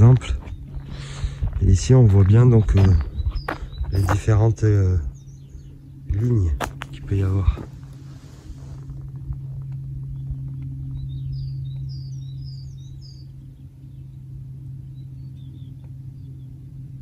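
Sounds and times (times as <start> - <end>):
footsteps on rock: 0.0 - 4.4, 6.2 - 9.5
songbird chirping: 0.0 - 8.0, 9.6 - 16.9
low hum: 0.0 - 17.0.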